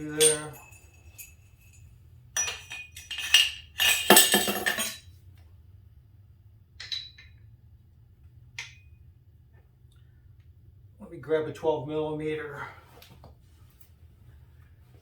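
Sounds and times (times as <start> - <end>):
metal tools clinking and rattling: 0.0 - 5.0, 6.8 - 7.4.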